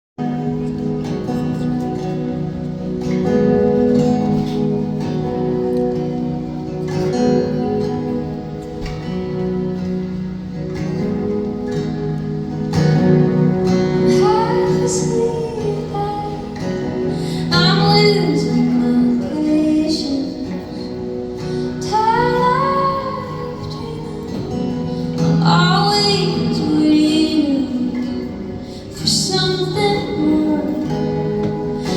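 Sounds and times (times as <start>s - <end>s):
acoustic guitar chords: 0.2s - 31.9s
person singing: 13.8s - 31.9s.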